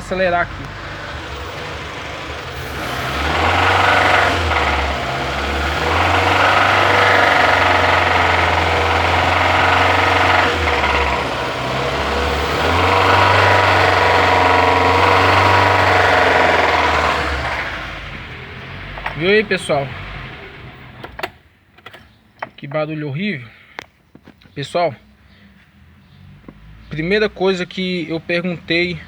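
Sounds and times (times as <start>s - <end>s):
engine knocking: 0.0s - 19.6s
car engine revving: 0.0s - 21.4s, 26.0s - 29.0s.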